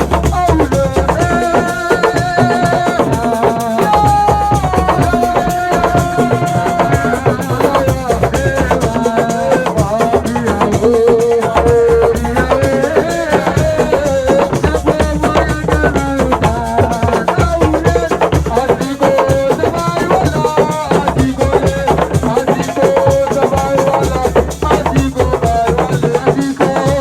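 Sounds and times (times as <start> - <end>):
fast hand drumming: 0.0 - 27.0
person singing: 0.0 - 27.0.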